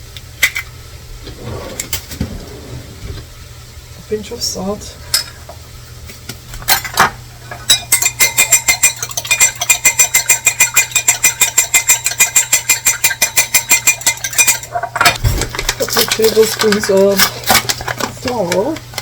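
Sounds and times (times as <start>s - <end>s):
whisk clicking against bowl: 7.7s - 14.7s.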